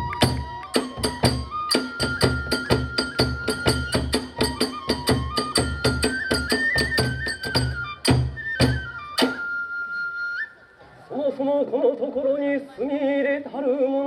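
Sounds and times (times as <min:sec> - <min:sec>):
ringing hand cymbals: 0:00.0 - 0:09.5
flute melody: 0:00.0 - 0:11.1.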